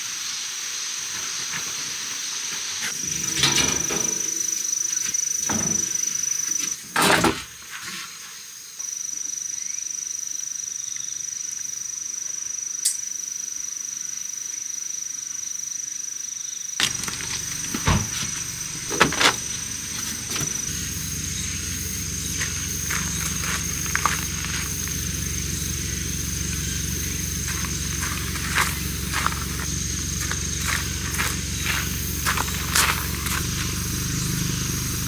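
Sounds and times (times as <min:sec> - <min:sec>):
crickets trilling: 0:00.3 - 0:06.9, 0:16.4 - 0:35.0
sharp knocks and clatters: 0:02.8 - 0:06.2, 0:16.8 - 0:33.6
low steady rumble: 0:16.8 - 0:35.0.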